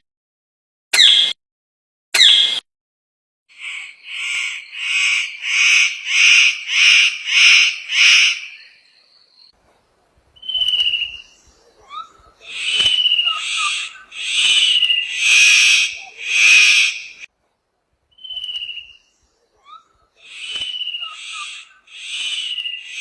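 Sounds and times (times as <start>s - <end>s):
bird calling repeated notes: 3.5s - 8.8s, 10.4s - 17.3s, 18.1s - 23.0s
bird chirps: 3.5s - 17.3s, 18.1s - 23.0s
bird whistle: 10.4s - 11.4s, 12.0s - 17.3s, 18.1s - 19.1s, 20.2s - 23.0s.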